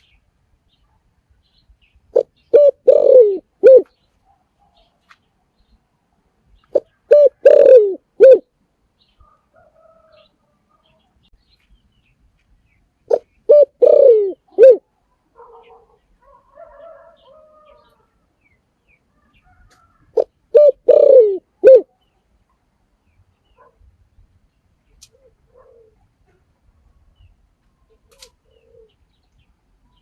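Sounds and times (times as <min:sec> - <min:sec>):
dove cooing: 0:02.1 - 0:04.0, 0:06.7 - 0:08.5, 0:13.1 - 0:14.9, 0:19.6 - 0:21.9, 0:25.1 - 0:26.4, 0:27.9 - 0:29.0.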